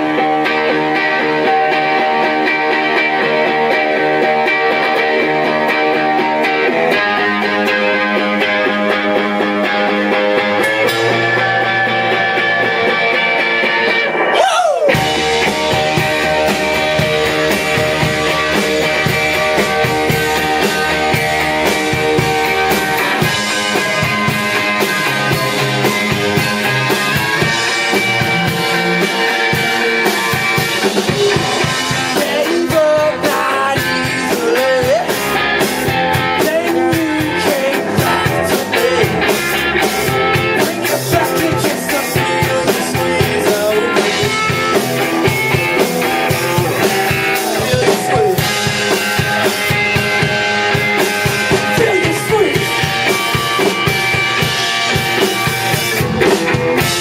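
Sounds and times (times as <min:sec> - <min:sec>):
live rock band playing: 0:00.0 - 0:57.0
person singing: 0:14.3 - 0:16.4, 0:31.1 - 0:35.4, 0:36.1 - 0:44.8, 0:47.4 - 0:49.7.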